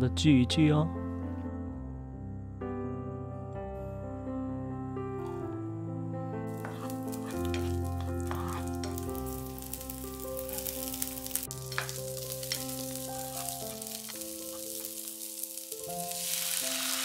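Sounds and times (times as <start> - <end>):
soft background music: 0.0 - 17.0
spatula scraping pan: 6.5 - 9.7, 11.7 - 14.6
vegetables sizzling in oil: 6.5 - 17.0.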